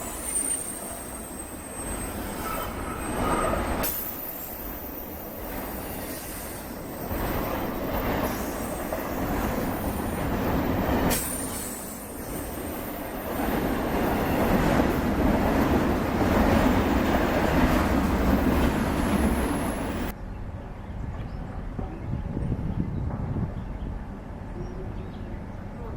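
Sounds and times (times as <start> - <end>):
high wheel squeal: 0.0 - 7.7
freight train cars rumbling on rails: 0.0 - 25.9.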